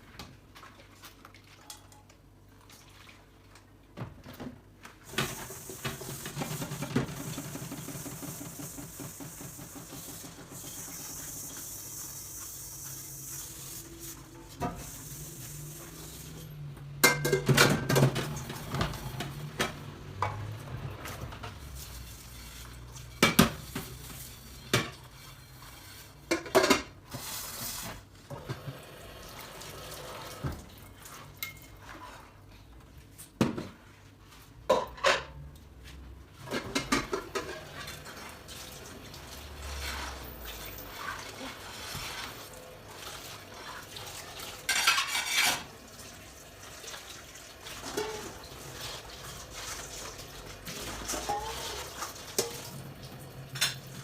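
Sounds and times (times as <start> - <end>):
dishes and cutlery clinking: 17.0 - 18.4, 31.4 - 32.0, 44.6 - 45.7.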